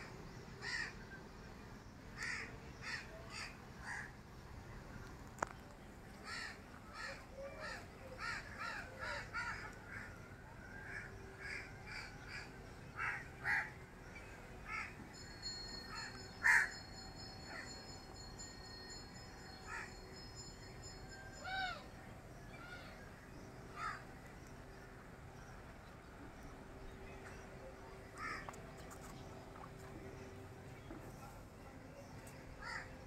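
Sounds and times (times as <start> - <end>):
thin high steady tone: 14.2 - 28.2
birds calling: 14.6 - 18.0.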